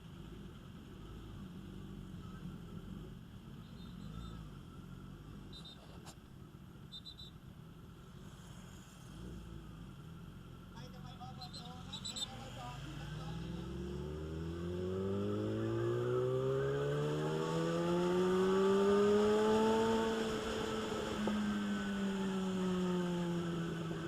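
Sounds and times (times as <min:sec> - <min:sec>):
motorcycle engine pulling away: 0:13.5 - 0:24.0.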